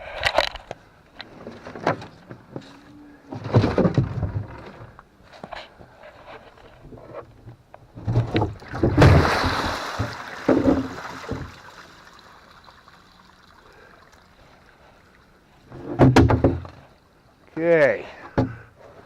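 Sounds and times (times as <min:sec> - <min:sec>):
water splashing: 0:08.4 - 0:15.7
hollow knocks on plastic tank: 0:16.0 - 0:16.8.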